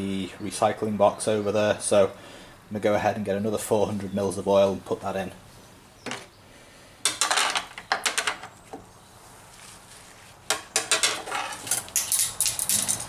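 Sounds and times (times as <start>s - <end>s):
hard objects clattering: 7.0s - 8.6s, 10.5s - 13.0s.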